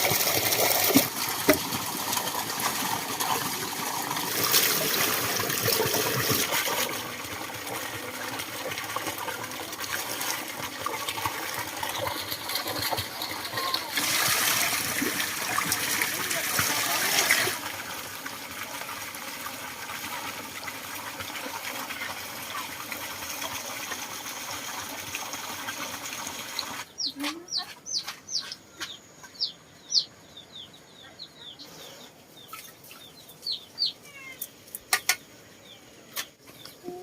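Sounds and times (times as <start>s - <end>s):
rush of water: 0.0s - 18.0s
chicks peeping: 26.9s - 31.8s, 32.4s - 34.0s.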